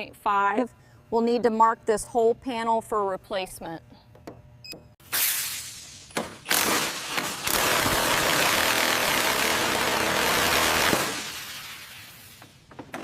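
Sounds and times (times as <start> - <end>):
power tool grinding: 6.5 - 11.2.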